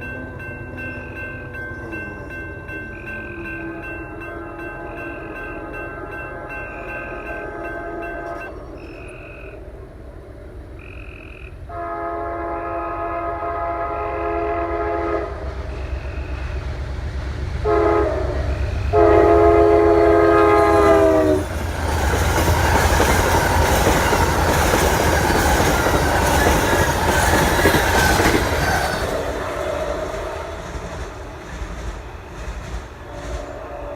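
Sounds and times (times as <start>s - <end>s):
train horn blasts: 5.4s - 9.6s, 11.7s - 16.6s, 17.6s - 21.6s, 33.1s - 33.9s
train wheels clattering past: 15.4s - 33.9s.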